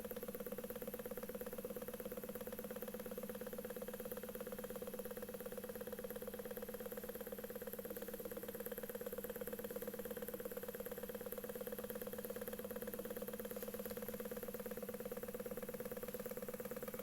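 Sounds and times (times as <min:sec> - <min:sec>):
engine fast mechanical beat: 0:06.1 - 0:17.0.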